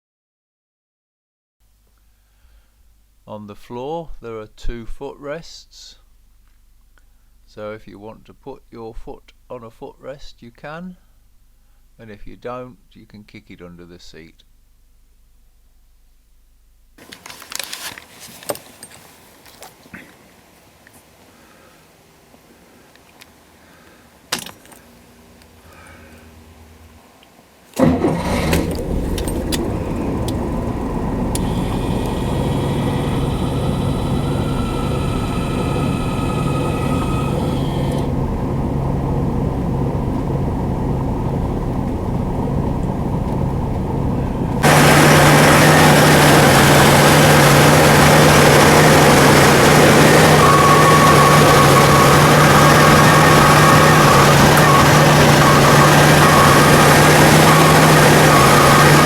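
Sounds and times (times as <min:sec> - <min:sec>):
car engine starting and idling: 0:27.7 - 0:59.0.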